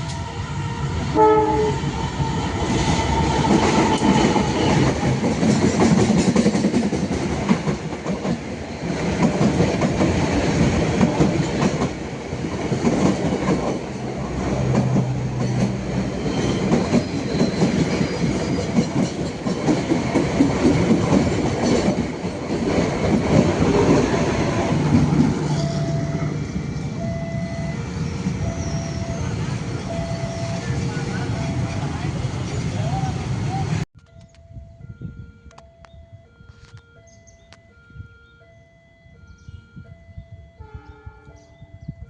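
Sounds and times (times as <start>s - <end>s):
train clattering over rail joints: 2.6s - 25.8s.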